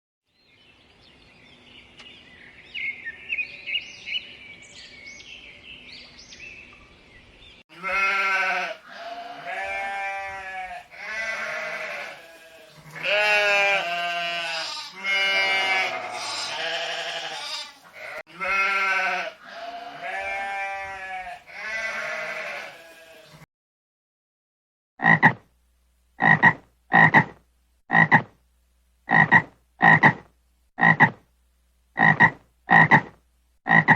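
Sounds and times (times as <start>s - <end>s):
sheep bleating: 7.7s - 23.4s
frog croaking: 25.0s - 25.4s, 26.2s - 28.3s, 29.1s - 30.2s, 30.8s - 31.2s, 32.0s - 33.9s.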